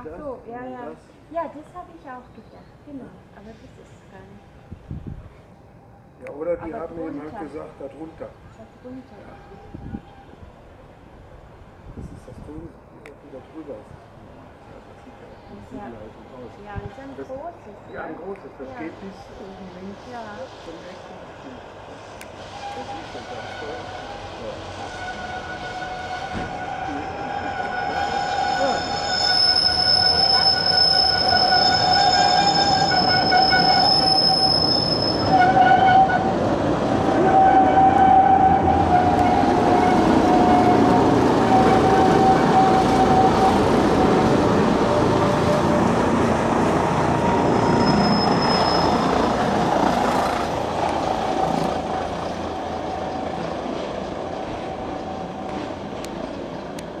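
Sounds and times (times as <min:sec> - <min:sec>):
train running rumble: 0:18.9 - 0:57.0
wheels squealing on curve: 0:22.4 - 0:46.0, 0:46.6 - 0:55.4.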